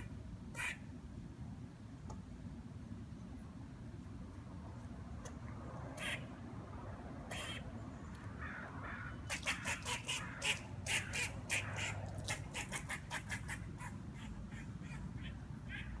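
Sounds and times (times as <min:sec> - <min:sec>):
squirrel quacking calls: 0:00.0 - 0:00.8, 0:06.0 - 0:06.2, 0:07.3 - 0:07.6, 0:08.4 - 0:16.0.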